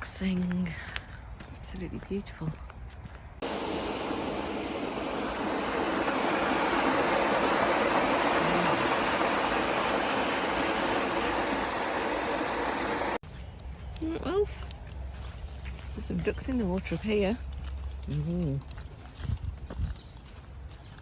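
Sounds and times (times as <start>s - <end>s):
rush of running water: 3.4s - 13.2s.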